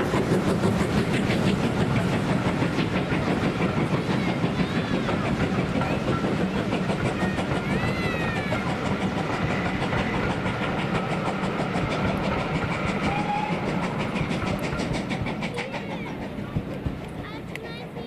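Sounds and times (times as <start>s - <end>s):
train wheels clicking over rail joints: 0.0s - 18.0s.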